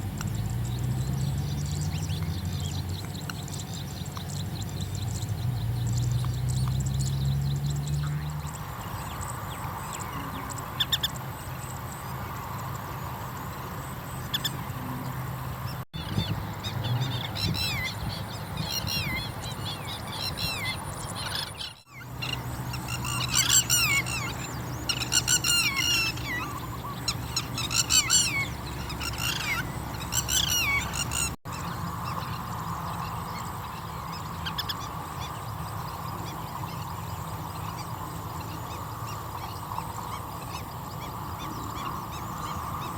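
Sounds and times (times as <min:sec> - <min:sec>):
birds calling sharp notes: 0:00.0 - 0:42.9.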